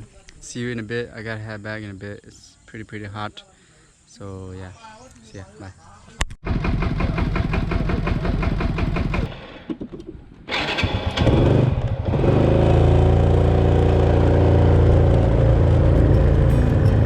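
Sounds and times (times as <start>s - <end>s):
motorcycle engine idling: 6.5s - 9.2s, 14.8s - 17.0s.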